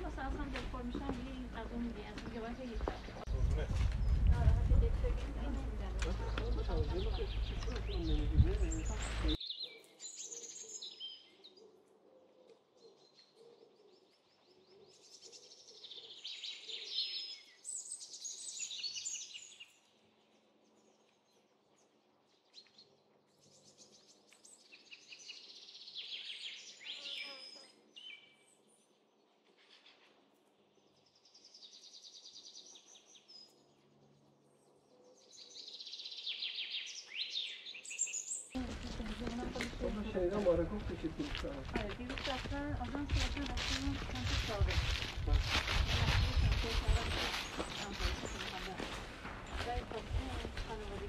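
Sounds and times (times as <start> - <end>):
songbirds chirping and trilling: 0.0 - 51.0.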